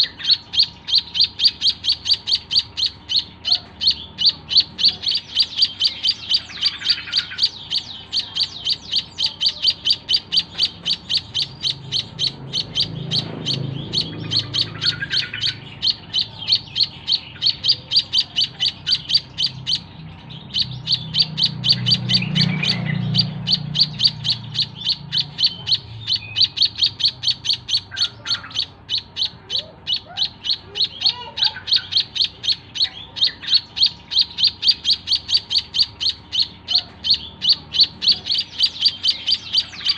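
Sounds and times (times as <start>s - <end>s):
bird chirping: 0.0s - 39.9s
low rumble: 11.5s - 16.1s.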